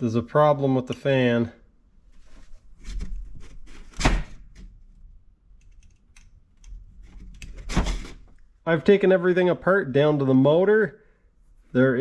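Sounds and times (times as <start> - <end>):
small parts clicking and knocking: 5.5 - 7.6.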